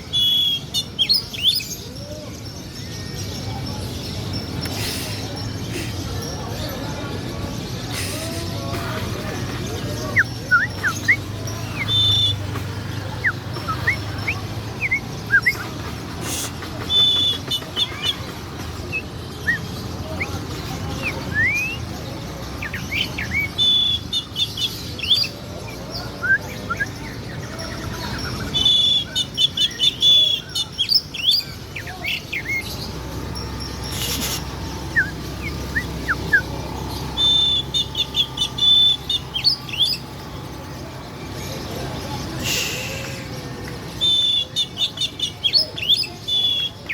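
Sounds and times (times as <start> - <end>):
songbird chirping phrases: 0.0 - 46.9
rapid high bird trill: 26.6 - 46.9.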